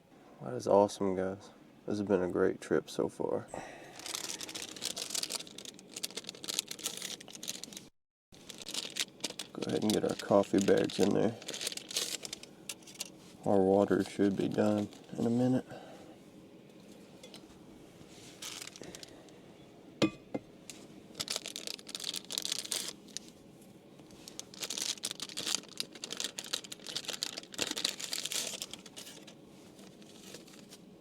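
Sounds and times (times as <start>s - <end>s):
wrapper crinkling and tearing: 3.9s - 13.2s, 13.8s - 15.4s, 18.4s - 19.2s, 20.7s - 23.4s, 24.0s - 30.9s.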